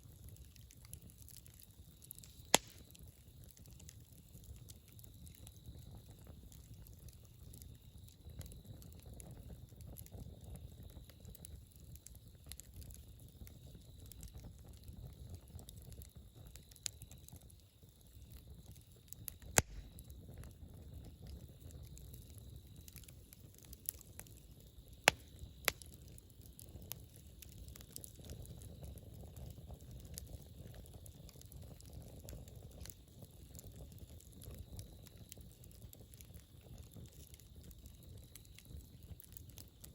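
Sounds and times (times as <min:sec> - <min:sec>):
campfire flames rumbling: 0:00.0 - 0:39.9
fire crackling: 0:00.0 - 0:39.9
sharp loud pops: 0:19.6 - 0:19.9.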